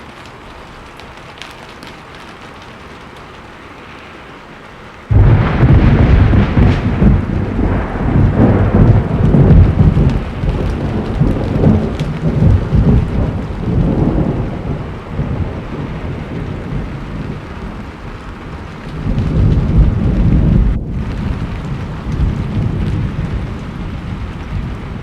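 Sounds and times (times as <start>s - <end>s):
steady rain: 0.0s - 25.0s
thunder clap and rumble: 5.1s - 25.0s.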